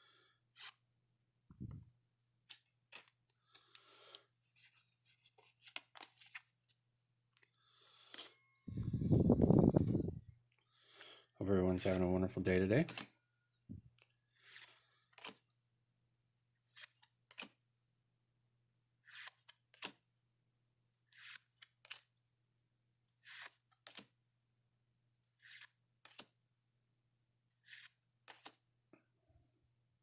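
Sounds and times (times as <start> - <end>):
trading cards swishing: 8.7 - 10.2.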